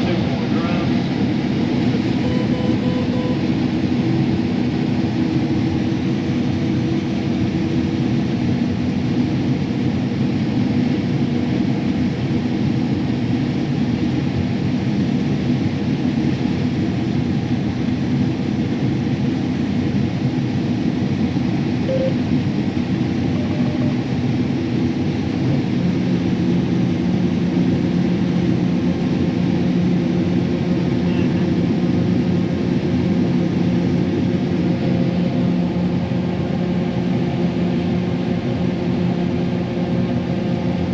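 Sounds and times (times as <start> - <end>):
diesel engine drone: 0.0 - 40.9
low hum: 1.0 - 4.8, 21.9 - 24.4.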